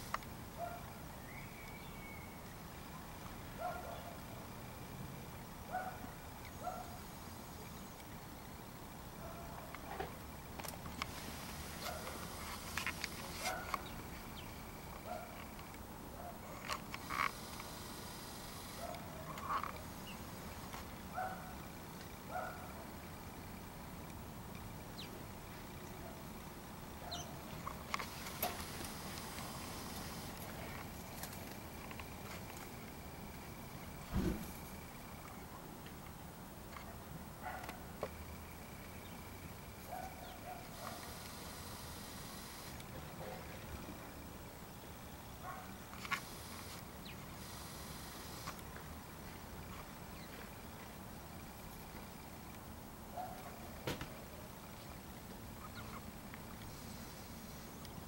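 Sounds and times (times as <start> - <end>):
birds calling: 0.0 - 4.6, 10.9 - 24.0, 24.7 - 35.5, 37.5 - 43.9, 54.7 - 56.6
outdoor hiss: 0.0 - 58.0
faint small bird chirps: 1.2 - 2.5, 55.6 - 56.1.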